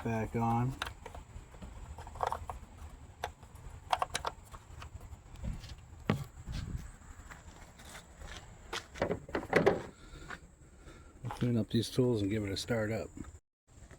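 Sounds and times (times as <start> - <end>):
dull thumps: 8.8 - 10.0.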